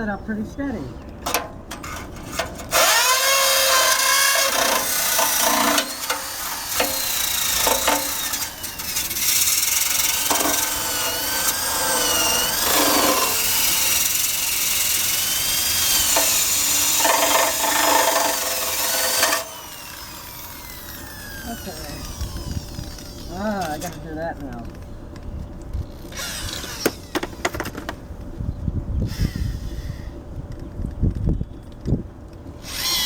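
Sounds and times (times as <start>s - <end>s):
drill wire brush scrubbing metal: 1.8s - 22.4s.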